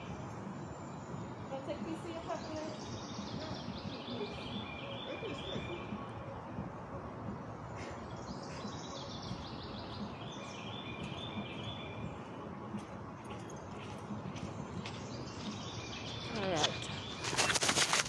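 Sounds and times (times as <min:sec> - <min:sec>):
outdoor background noise: 0:00.0 - 0:18.0
songbird singing: 0:00.0 - 0:18.0.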